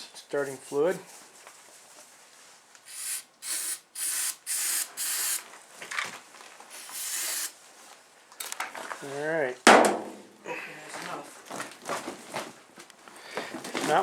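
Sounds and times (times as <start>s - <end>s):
aerosol can spraying: 2.9s - 5.4s, 6.7s - 7.6s.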